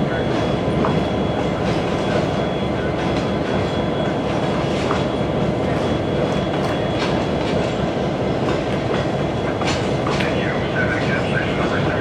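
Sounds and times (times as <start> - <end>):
train passing with heavy rumble: 0.0 - 12.0.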